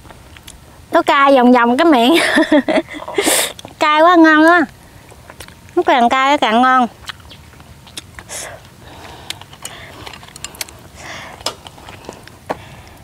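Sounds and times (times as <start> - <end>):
person sniffing and breathing sharply: 3.0 - 3.6, 8.2 - 13.0.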